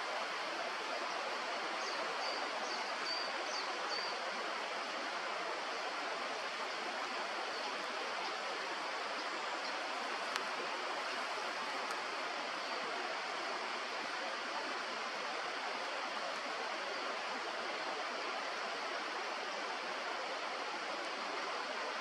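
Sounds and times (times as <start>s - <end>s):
river rushing: 0.0s - 22.0s.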